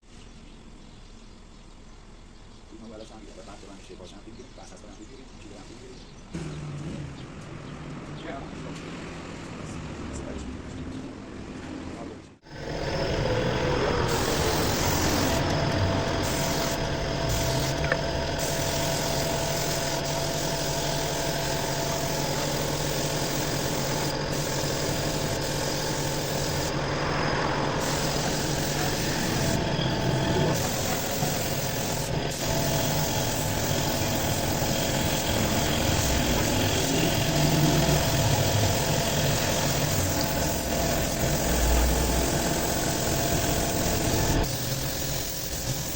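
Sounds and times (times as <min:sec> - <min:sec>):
machine running with hiss and hum: 0:12.4 - 0:45.9.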